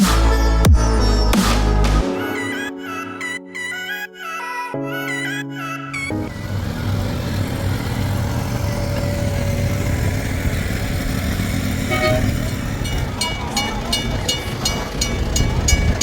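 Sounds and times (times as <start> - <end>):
motor vehicle rumbling: 6.3 - 16.0
horn toot: 11.9 - 12.6.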